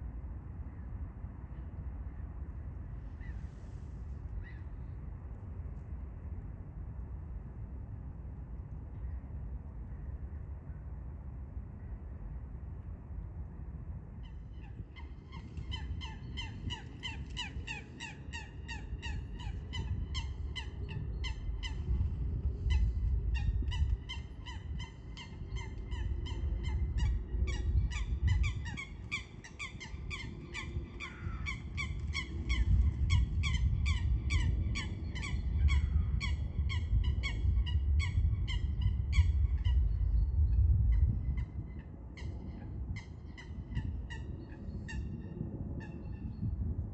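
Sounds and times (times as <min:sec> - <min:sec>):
low rumble: 0:19.1 - 0:29.0.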